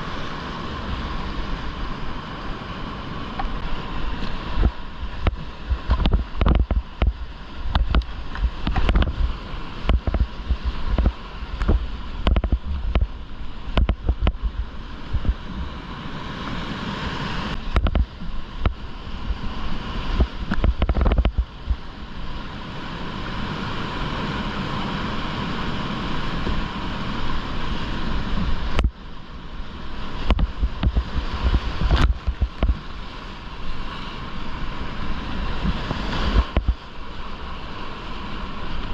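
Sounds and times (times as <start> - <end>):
water splashing: 0.0 - 15.8, 29.9 - 38.9
water buffeting microphone: 0.0 - 38.9
whitewater rapids rushing: 0.0 - 38.9.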